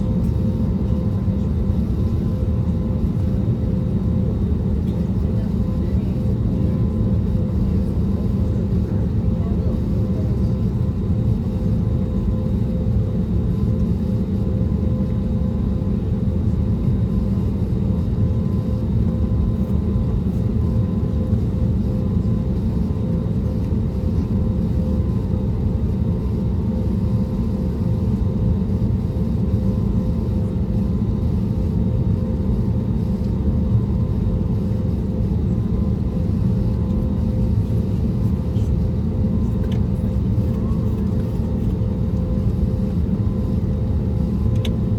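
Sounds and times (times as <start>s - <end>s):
aircraft cabin engine rumble: 0.0s - 44.9s.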